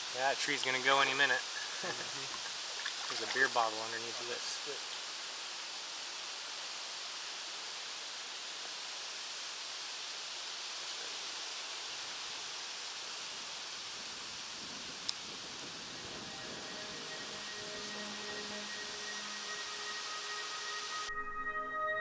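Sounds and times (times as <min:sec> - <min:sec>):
steady outdoor hiss: 0:00.0 - 0:22.0.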